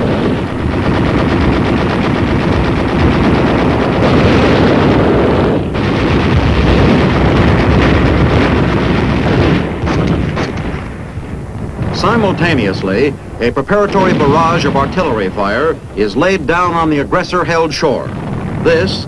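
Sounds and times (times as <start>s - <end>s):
machine guns and rifles firing: 0.0s - 19.0s.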